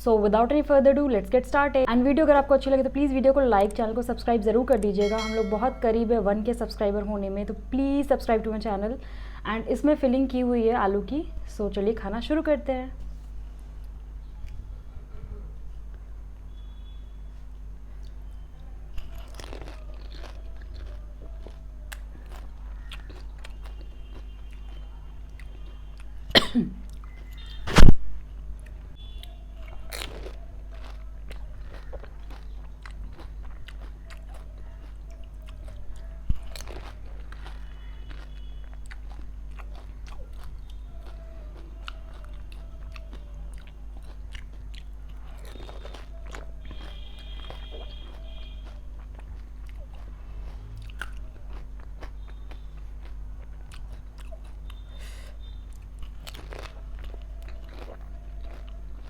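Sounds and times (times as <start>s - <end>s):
steady low hum: 0.0s - 59.0s
crunchy food chewing: 15.9s - 27.9s, 28.6s - 59.0s
loud sharp crunches: 18.9s - 24.8s, 27.4s - 28.0s, 45.3s - 49.2s, 56.0s - 59.0s.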